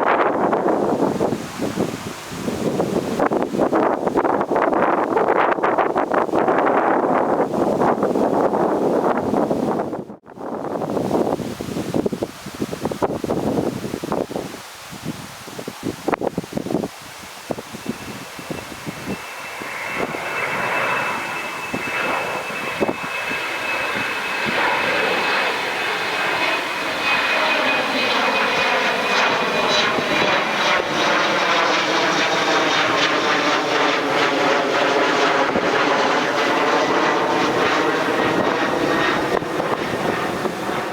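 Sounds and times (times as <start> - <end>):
jet airliner flying past: 0.0 - 15.7, 16.6 - 40.9
high whine: 16.2 - 40.9.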